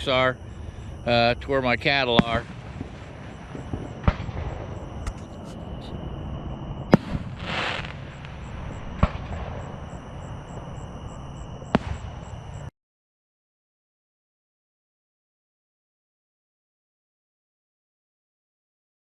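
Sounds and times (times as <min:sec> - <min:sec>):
fireworks crackling hiss: 0:00.5 - 0:06.1, 0:06.9 - 0:10.7
fireworks bangs: 0:00.6 - 0:12.7.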